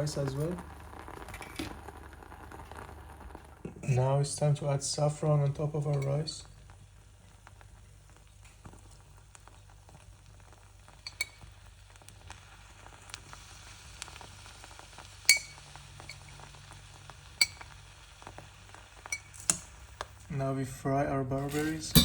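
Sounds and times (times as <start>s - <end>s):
food sizzling in a pan: 0.0s - 20.3s
utensil clinking on cookware: 11.1s - 11.4s, 15.3s - 16.2s, 17.4s - 17.7s, 21.5s - 22.0s.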